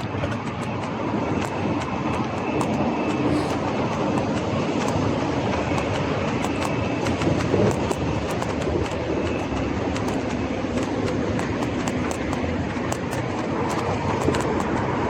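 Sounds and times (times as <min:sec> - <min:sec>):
bike clicks and rattles: 0:00.0 - 0:15.0
bike tyre rumble: 0:00.0 - 0:15.0.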